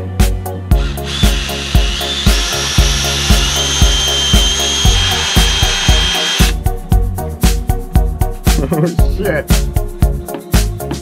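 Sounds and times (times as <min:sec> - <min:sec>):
background music with steady beat: 0:00.0 - 0:11.0
electric drill motor whining: 0:00.8 - 0:06.6.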